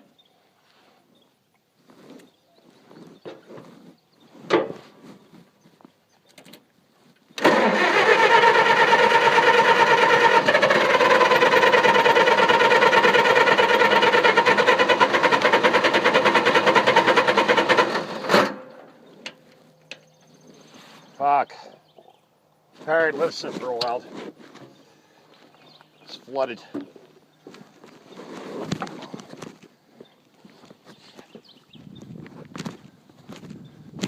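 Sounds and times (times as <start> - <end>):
starter cranking engine: 7.4 - 18.8.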